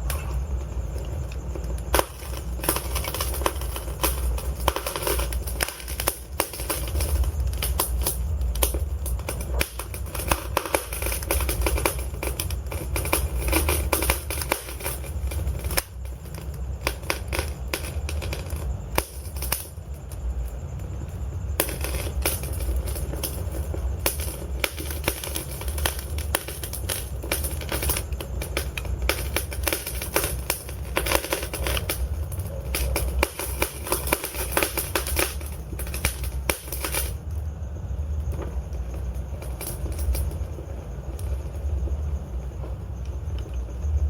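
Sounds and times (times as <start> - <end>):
wood fire crackling and popping: 0.0 - 44.0.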